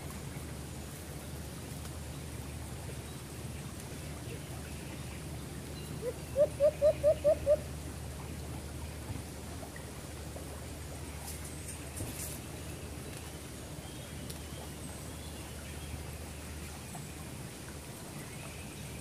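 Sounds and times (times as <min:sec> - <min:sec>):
low background hiss: 0:00.0 - 0:19.0
bird calling: 0:06.0 - 0:07.6.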